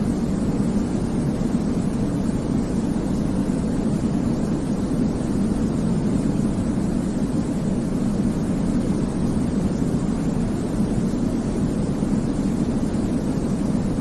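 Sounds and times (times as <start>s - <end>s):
deep rumbling white noise: 0.0s - 14.0s.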